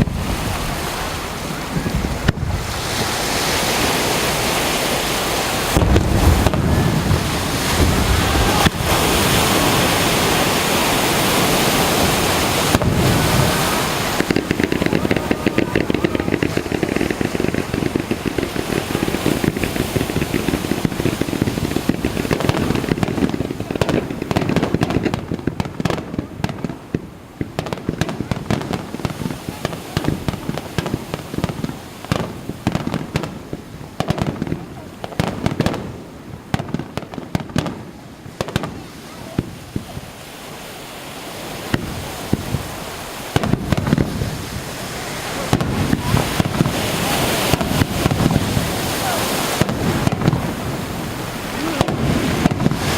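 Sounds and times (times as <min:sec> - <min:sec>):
steady wash of noise: 0:00.0 - 0:26.4, 0:38.0 - 0:52.9
fireworks bursting and crackling: 0:00.0 - 0:52.9.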